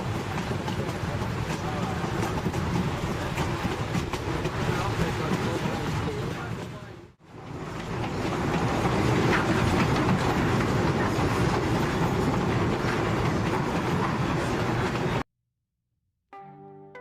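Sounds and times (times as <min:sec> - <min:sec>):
train wheels rumbling on rails: 0:00.0 - 0:15.2.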